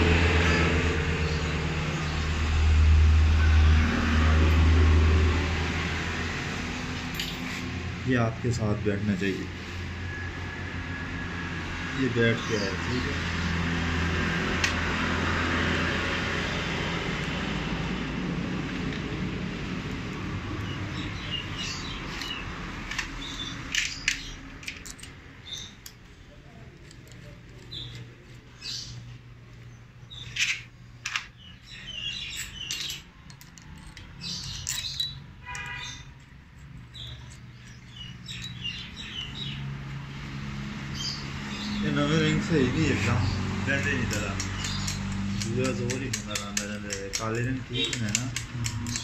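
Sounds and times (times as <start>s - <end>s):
small birds chirping: 20.5s - 49.0s
sharp clicks: 44.0s - 49.0s.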